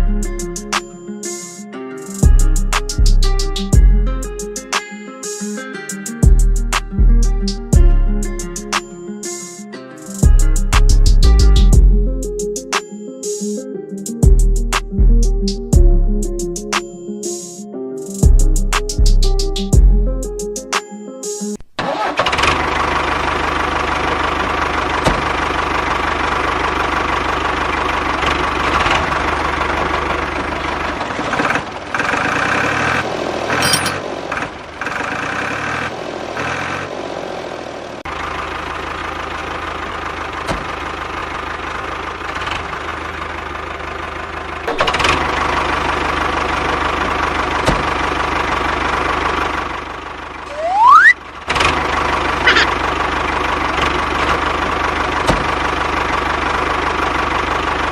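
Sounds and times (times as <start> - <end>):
mini tractor engine running: 21.8 - 50.6, 51.2 - 57.9
short rising whistle: 50.5 - 51.2.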